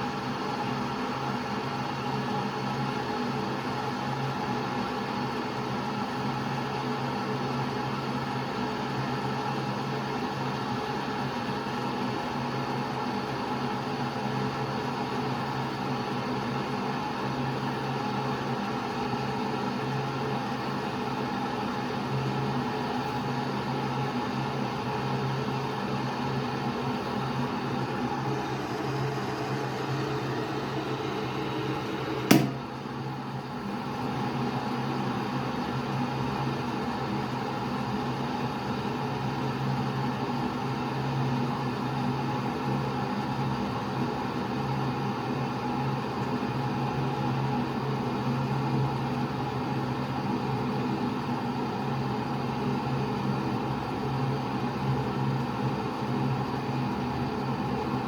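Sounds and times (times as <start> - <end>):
electric kettle humming and hissing: 26.3 - 33.4
sharp click: 27.9 - 32.7.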